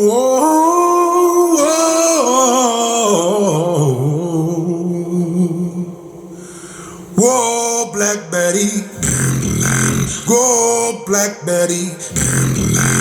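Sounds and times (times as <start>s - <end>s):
man singing held note: 7.2s - 13.0s.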